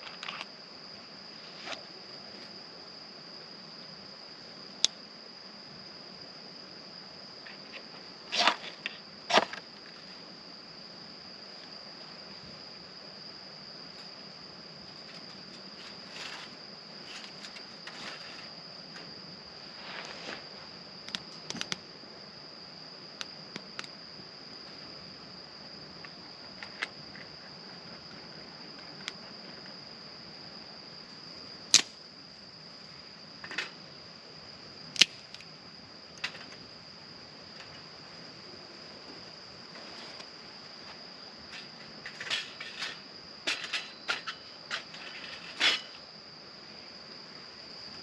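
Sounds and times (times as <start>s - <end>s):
crickets trilling: 0.0s - 48.0s
sharp clicks and snaps: 21.1s - 21.8s, 34.9s - 35.4s.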